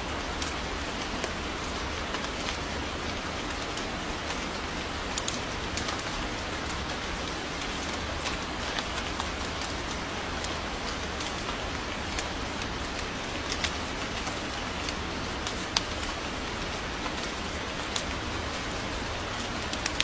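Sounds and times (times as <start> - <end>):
raindrops ticking: 0.0 - 20.0
steady rain falling: 0.0 - 20.0.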